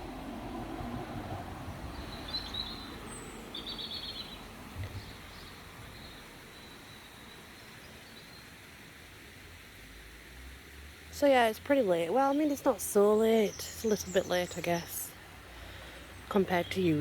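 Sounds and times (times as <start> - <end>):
low outdoor background noise: 0.0 - 17.0
small birds chirping: 1.8 - 8.7, 11.2 - 17.0.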